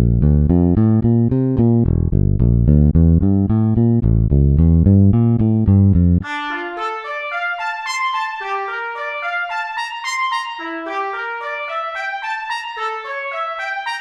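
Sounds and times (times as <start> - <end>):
trumpet melody: 6.2 - 14.0.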